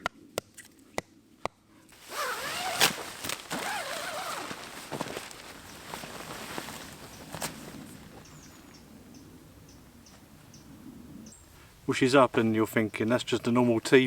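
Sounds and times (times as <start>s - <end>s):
rustling and scraping: 2.0s - 8.3s.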